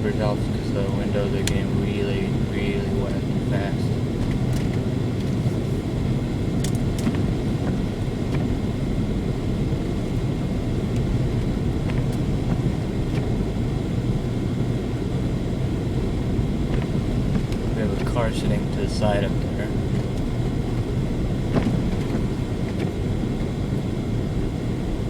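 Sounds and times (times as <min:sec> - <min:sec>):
car engine hum: 0:00.0 - 0:25.0
tyres running through slush: 0:16.9 - 0:20.0.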